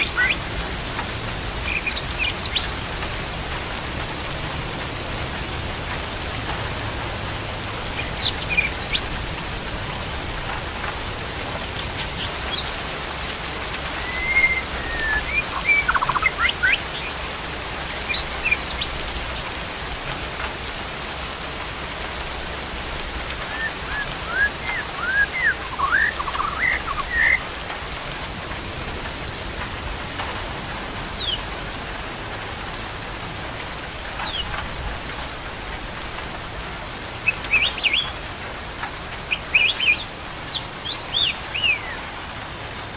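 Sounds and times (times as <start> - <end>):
birds chirping: 0.0 - 21.1, 21.9 - 42.9
rain hiss: 0.0 - 42.9.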